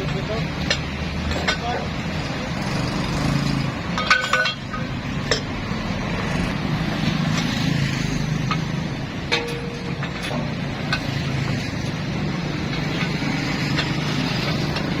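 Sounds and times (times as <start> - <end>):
tools clinking on metal: 0.0 - 1.9, 3.9 - 5.6, 9.3 - 11.1.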